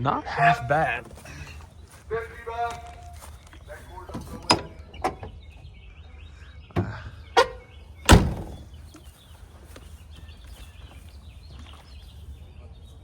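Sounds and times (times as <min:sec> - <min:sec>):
sharp knocks and thuds: 0:08.1 - 0:09.1.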